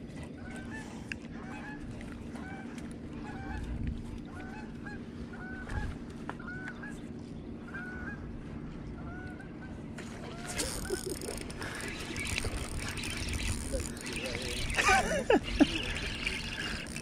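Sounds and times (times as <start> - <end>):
low hum: 0.0 - 17.0
flock of birds calling: 10.6 - 17.0.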